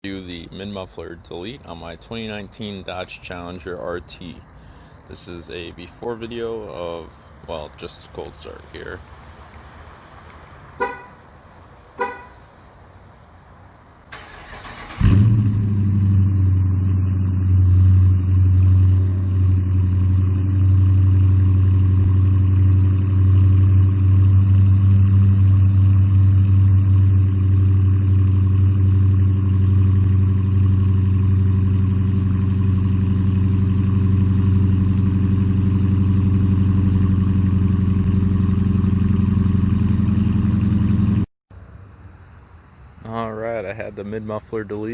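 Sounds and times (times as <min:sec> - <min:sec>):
car horn chirps: 0:10.8 - 0:11.2, 0:12.0 - 0:12.4
engine cranking: 0:14.1 - 0:15.7.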